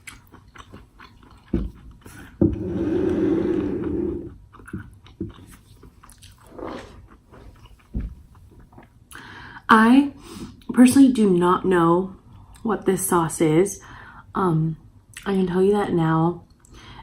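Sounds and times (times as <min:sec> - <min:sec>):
chewing and biting: 0:00.0 - 0:02.4, 0:04.3 - 0:09.0.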